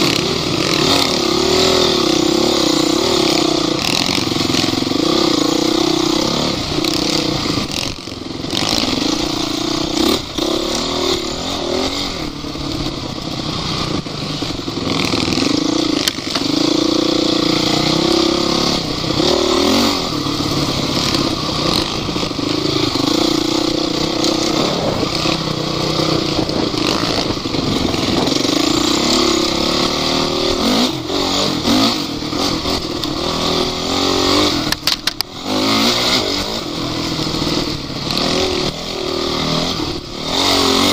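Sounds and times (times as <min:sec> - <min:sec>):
off-road vehicle engine revving: 0:00.0 - 0:40.9.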